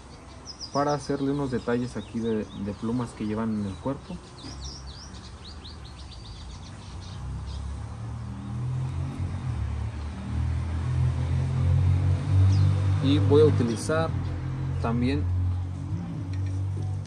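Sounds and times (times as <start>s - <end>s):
small bird chirping: 0.0s - 7.9s.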